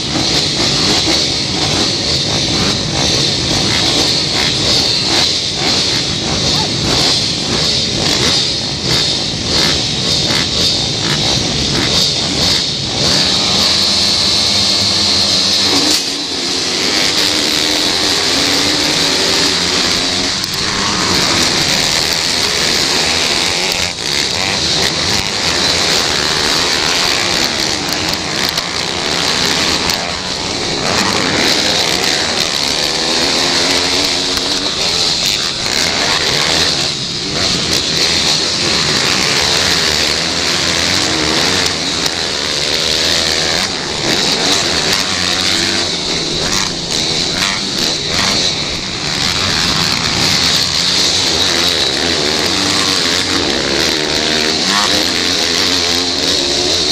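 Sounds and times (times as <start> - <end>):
pit bike engines revving: 0.0 - 56.9.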